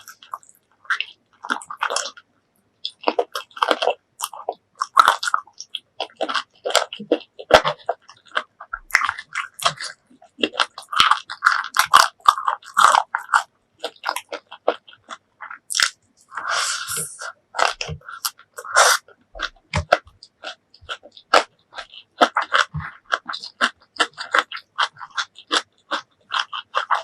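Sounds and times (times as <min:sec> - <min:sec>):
crunchy bites and wet chewing: 0:00.0 - 0:27.0
soft squelch: 0:13.1 - 0:25.3.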